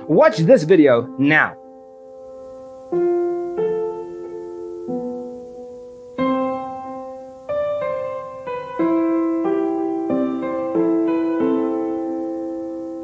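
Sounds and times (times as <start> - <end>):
slow solo piano: 1.1 - 13.0.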